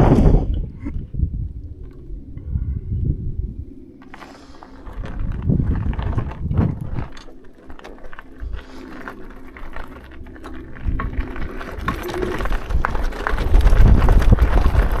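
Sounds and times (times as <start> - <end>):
faint steady hum: 0.0 - 15.0
wind buffeting microphone: 0.0 - 15.0
bike clicks: 3.7 - 15.0.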